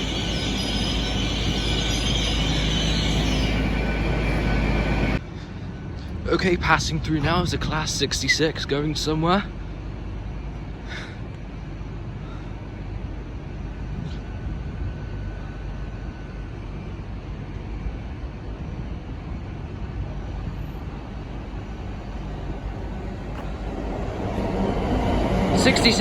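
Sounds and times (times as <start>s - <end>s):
diesel locomotive engine rumble: 0.0s - 26.0s.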